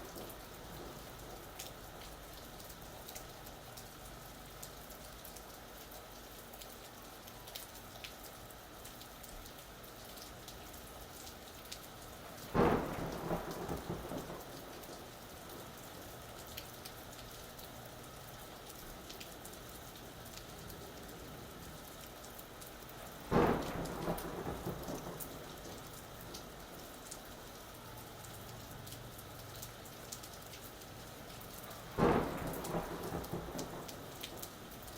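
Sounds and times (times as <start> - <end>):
thunder claps rumbling: 0.0 - 1.4, 12.5 - 15.7, 23.3 - 26.8, 31.7 - 34.9
raindrops ticking: 0.0 - 34.9
steady rain falling: 0.0 - 34.9.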